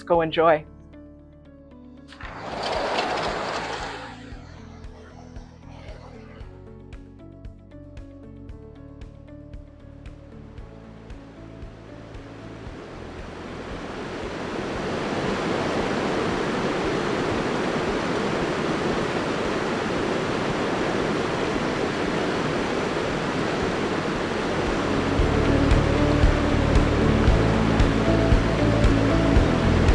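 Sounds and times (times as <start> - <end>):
music: 0.0 - 14.5, 24.2 - 29.9
river water rushing: 2.1 - 4.8, 12.4 - 29.9.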